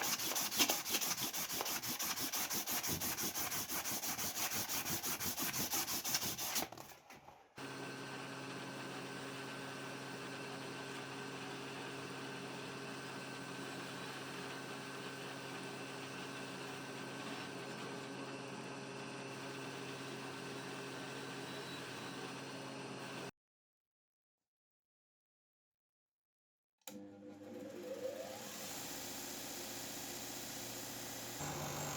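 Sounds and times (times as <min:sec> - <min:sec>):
rhythmic rubbing strokes: 0:00.0 - 0:06.5.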